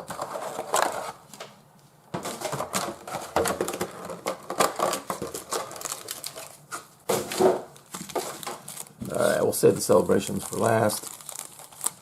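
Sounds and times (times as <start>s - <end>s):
card packs clicking and crinkling: 2.2s - 12.0s.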